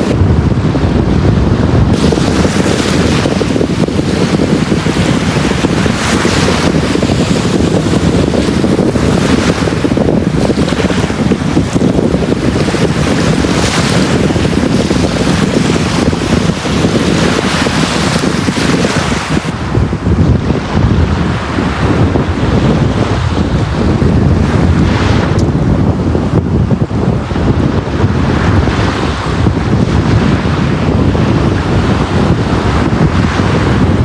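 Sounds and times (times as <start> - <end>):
wind buffeting microphone: 0.0 - 34.0
waves washing onto beach: 1.9 - 19.8.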